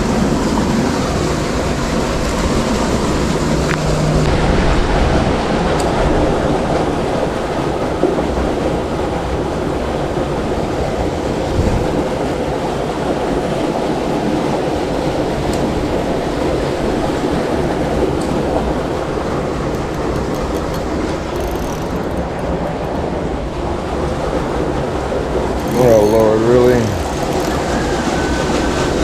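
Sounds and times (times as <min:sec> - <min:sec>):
faint clicks: 0:18.2 - 0:23.2, 0:25.6 - 0:27.8.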